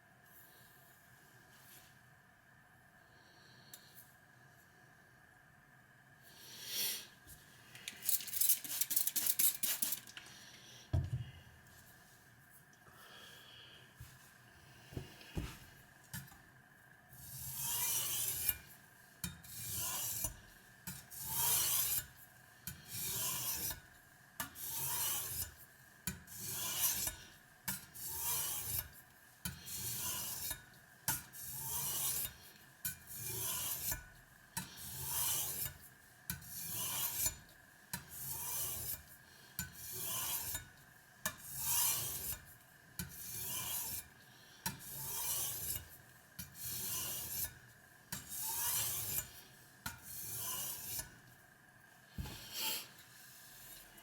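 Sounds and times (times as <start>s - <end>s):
knife scraping on sharpening stone: 17.2s - 18.6s, 19.2s - 22.1s, 22.7s - 23.8s, 24.4s - 34.0s, 34.6s - 37.4s, 38.0s - 39.0s, 39.6s - 40.7s, 41.3s - 44.1s, 44.7s - 51.2s.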